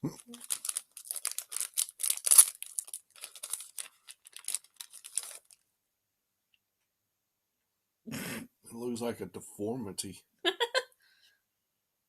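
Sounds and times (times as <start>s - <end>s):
plastic wrapper crinkling and tearing: 0.0s - 5.6s.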